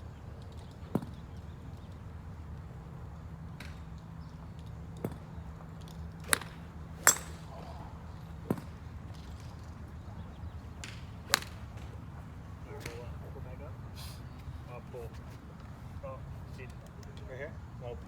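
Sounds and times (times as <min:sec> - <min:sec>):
golf clubs striking balls: 0:03.5 - 0:13.5.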